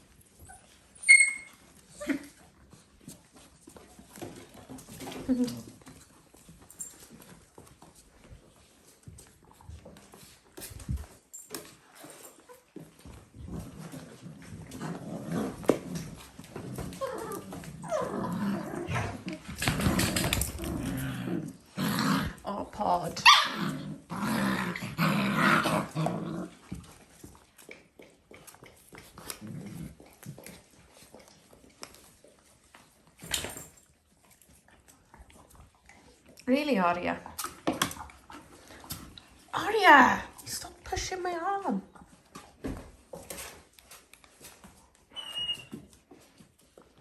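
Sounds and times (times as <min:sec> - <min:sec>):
puppy growling: 0:13.3 - 0:31.2.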